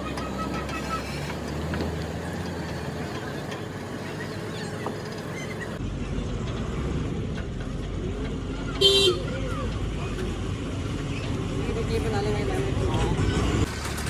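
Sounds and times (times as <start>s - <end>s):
road noise: 0.0s - 14.0s
vehicle engine: 0.0s - 14.0s.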